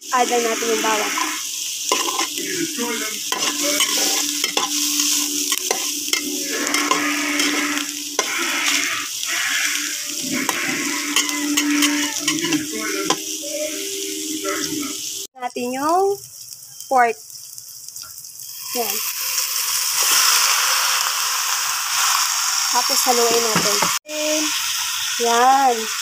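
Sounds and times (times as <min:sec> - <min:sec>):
food sizzling in fat: 0:00.0 - 0:26.0
metal spatula scraping pan: 0:00.4 - 0:02.4, 0:03.3 - 0:13.3.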